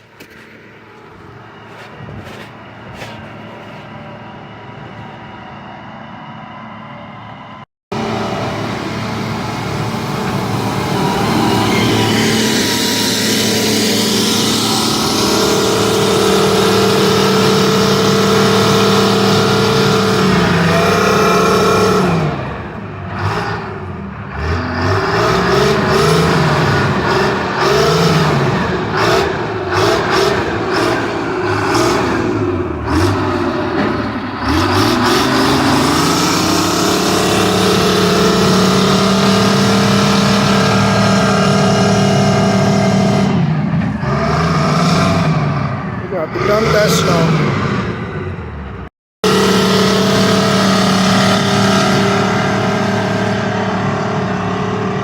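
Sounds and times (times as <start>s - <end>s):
engine running: 0.0s - 55.0s.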